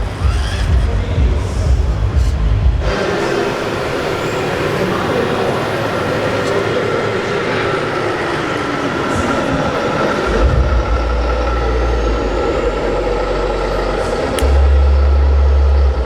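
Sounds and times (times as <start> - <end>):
deep low rumble: 0.0 - 2.9, 10.3 - 16.0
model truck engines humming: 0.0 - 16.0.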